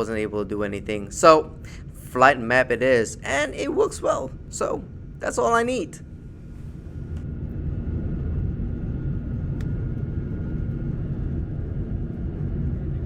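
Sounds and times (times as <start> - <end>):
airplane cabin roar: 0.0 - 13.0
faint steady hum: 0.0 - 13.0.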